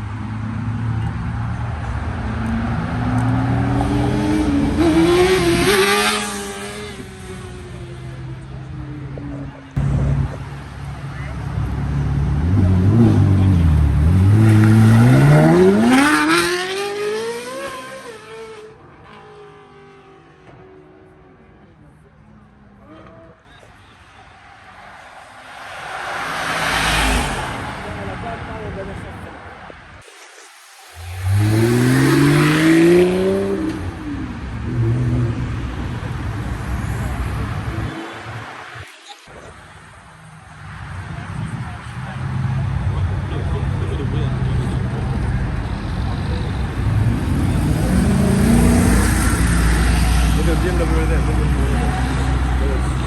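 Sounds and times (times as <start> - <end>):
car engine accelerating hard: 11.9 - 20.2, 31.0 - 36.2, 42.6 - 53.0.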